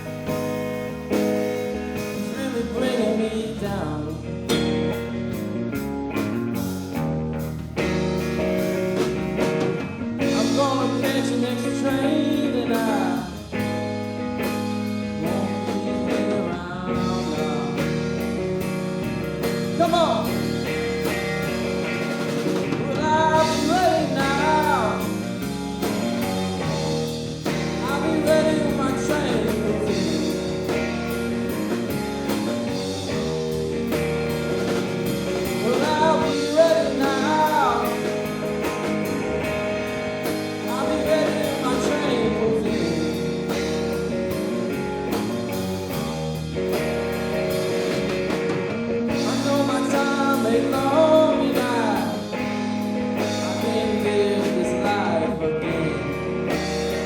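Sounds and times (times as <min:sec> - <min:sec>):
blues-rock band playing: 0:00.0 - 0:57.0
lead guitar solo: 0:12.6 - 0:57.0.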